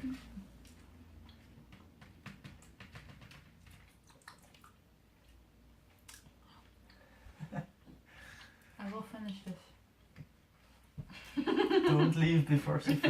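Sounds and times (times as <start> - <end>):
person chewing food: 0.6 - 1.8, 3.7 - 7.1.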